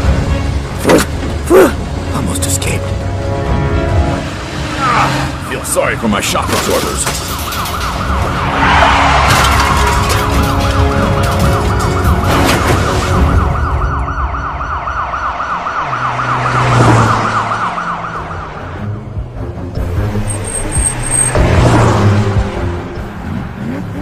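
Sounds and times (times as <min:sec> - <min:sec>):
police siren yelping: 0:06.6 - 0:19.1
clatter: 0:09.2 - 0:12.6.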